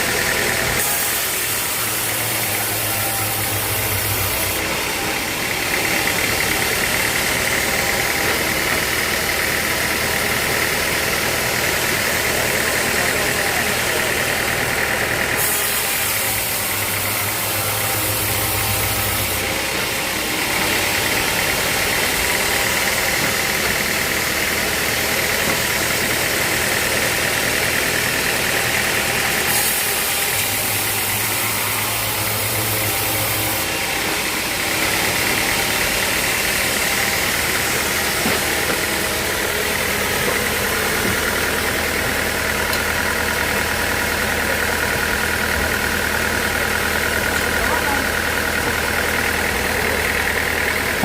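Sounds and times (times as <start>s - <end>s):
sawmill machinery drone: 0.0s - 51.0s.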